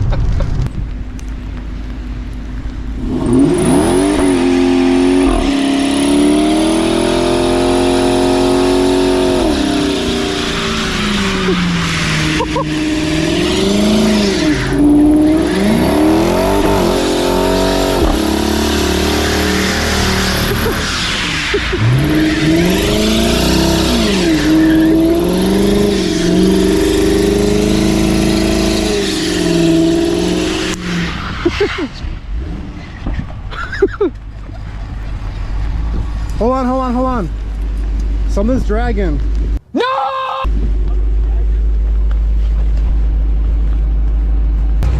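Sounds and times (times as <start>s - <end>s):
car engine revving: 2.4s - 33.4s, 41.2s - 44.9s.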